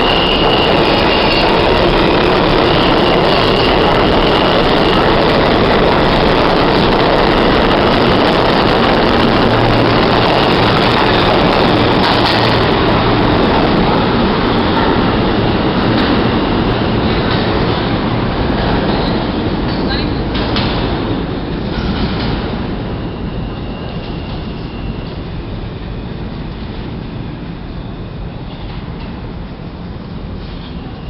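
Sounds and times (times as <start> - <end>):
high wheel squeal: 0.0 - 14.0, 22.8 - 26.2
subway train wheels rumbling on rail: 0.0 - 31.0.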